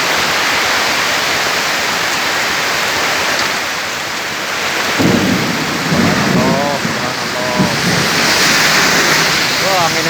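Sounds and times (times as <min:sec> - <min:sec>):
strong storm wind: 0:00.0 - 0:10.0
low rumble of gust: 0:04.9 - 0:10.0.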